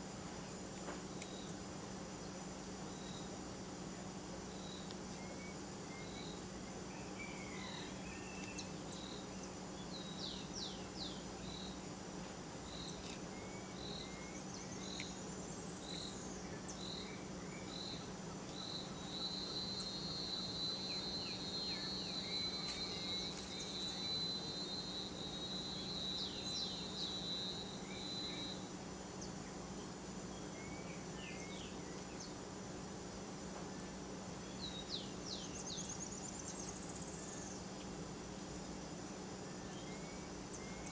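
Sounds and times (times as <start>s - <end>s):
steady low hum: 0.0s - 40.9s
bird chirps: 12.6s - 29.5s
high-pitched insect call: 12.6s - 32.7s.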